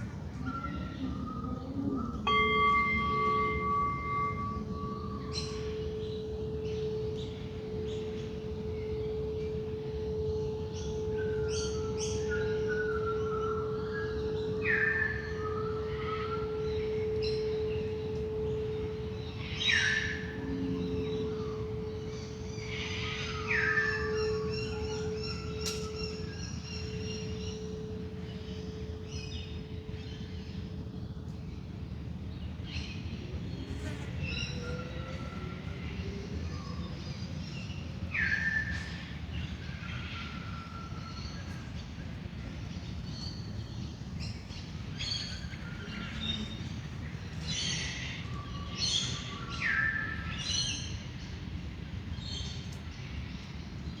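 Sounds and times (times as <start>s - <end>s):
bird chirps: 0.4s - 31.3s
singing bowl ringing: 2.0s - 32.9s.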